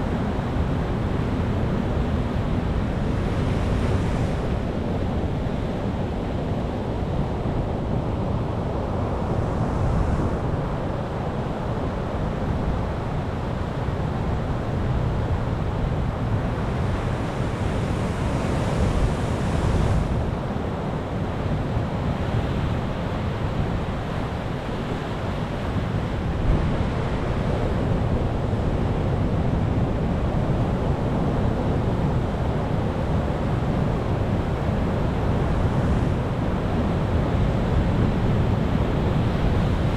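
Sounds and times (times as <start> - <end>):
ocean surf breaking on beach: 14.8 - 39.9.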